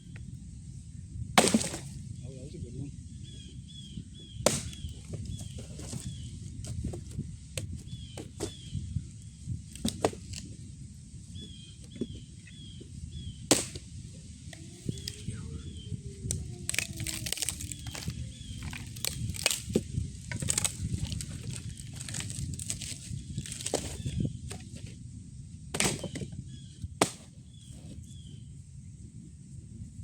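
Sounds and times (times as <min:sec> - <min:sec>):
small birds chirping: 0:02.2 - 0:24.9, 0:25.8 - 0:28.6
campfire crackling and popping: 0:16.2 - 0:24.0.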